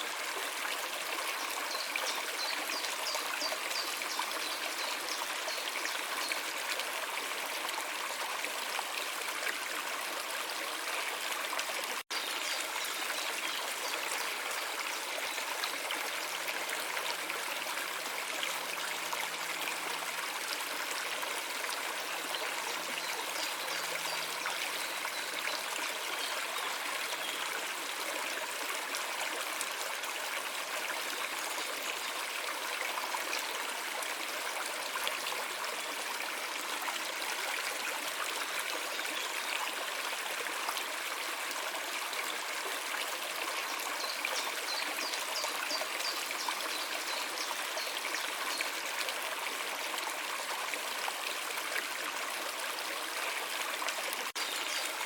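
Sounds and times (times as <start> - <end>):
stream water running: 0.0 - 55.0.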